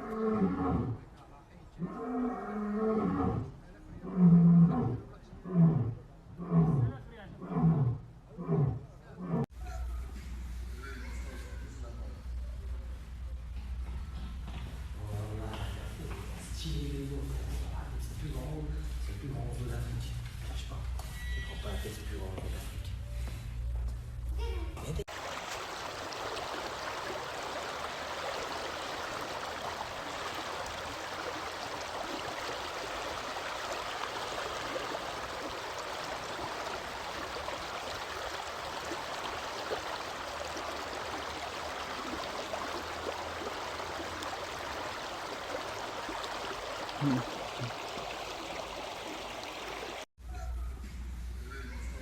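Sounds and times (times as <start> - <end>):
rushing water: 25.1 - 50.1.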